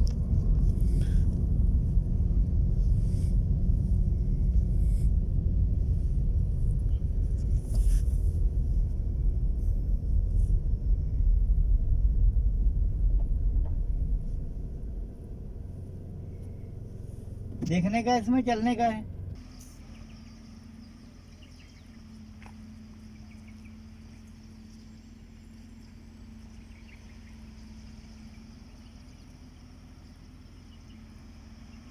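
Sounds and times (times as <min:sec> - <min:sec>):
loud low rumble: 0:00.0 - 0:24.6.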